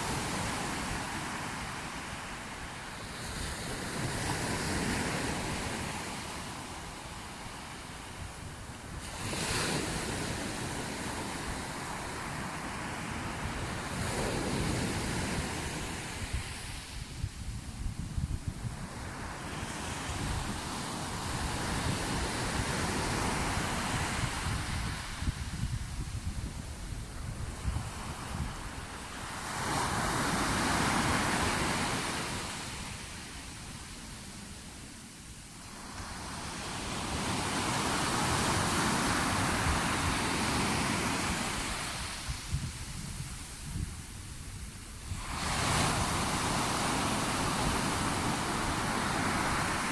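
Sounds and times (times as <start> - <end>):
sea waves washing onto shore: 0.0 - 17.8, 18.5 - 49.9
wind buffeting microphone: 13.4 - 32.6, 37.1 - 49.9.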